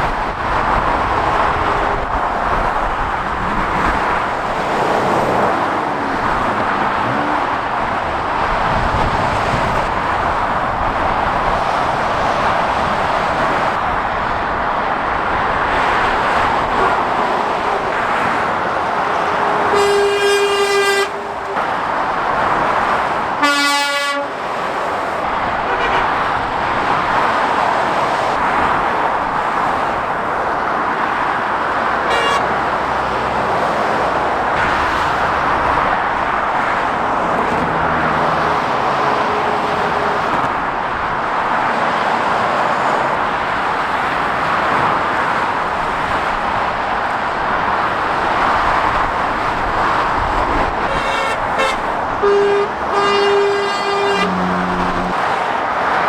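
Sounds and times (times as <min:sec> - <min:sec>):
motorway traffic: 0:00.0 - 0:56.0
vehicle horn: 0:16.7 - 0:21.8, 0:23.4 - 0:24.4, 0:25.7 - 0:26.2, 0:32.0 - 0:32.6, 0:38.9 - 0:40.4, 0:50.8 - 0:55.3.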